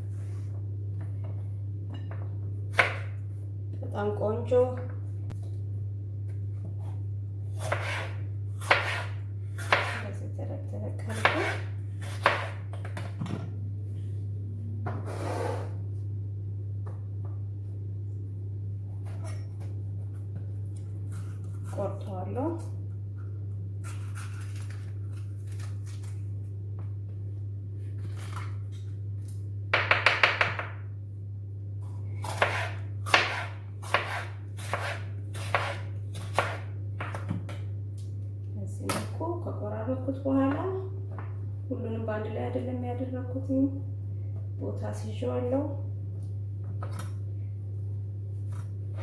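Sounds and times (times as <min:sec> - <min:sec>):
steady low hum: 0:00.0 - 0:49.0
knife chopping on cutting board: 0:07.6 - 0:10.0, 0:11.1 - 0:13.1, 0:32.2 - 0:37.4.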